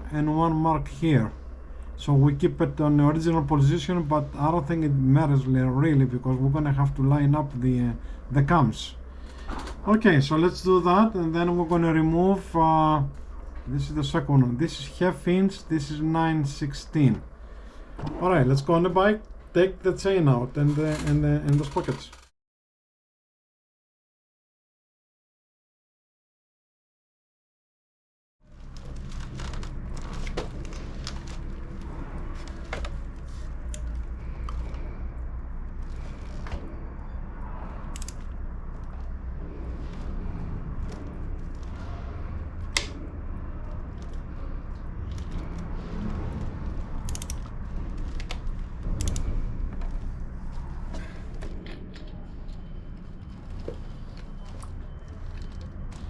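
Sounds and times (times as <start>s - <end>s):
steady low hum: 0.0s - 22.3s, 28.4s - 56.0s
low rumble: 28.5s - 56.0s.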